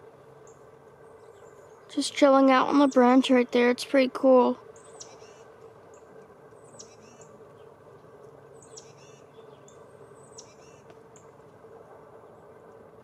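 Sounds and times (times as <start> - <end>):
faint songbird calls: 0.4 - 3.6, 4.6 - 11.4.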